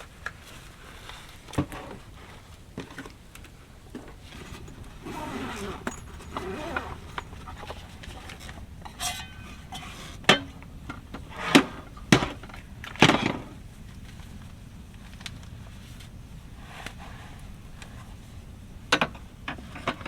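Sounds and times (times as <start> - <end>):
cookware clanking: 4.4 - 10.5.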